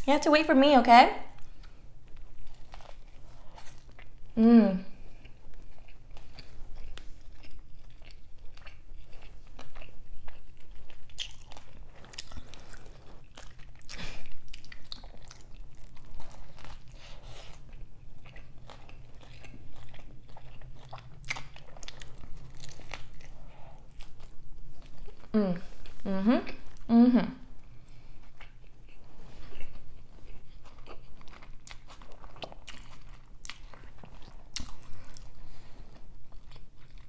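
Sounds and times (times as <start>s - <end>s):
biting and chewing burger: 1.4s - 4.4s, 5.0s - 25.3s, 28.2s - 37.0s.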